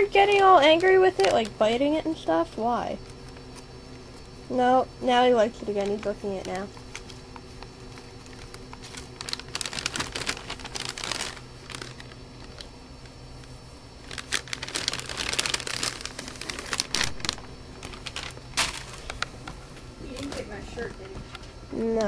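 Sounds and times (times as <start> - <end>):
plastic bag crinkling: 0.1 - 1.8, 5.5 - 19.5.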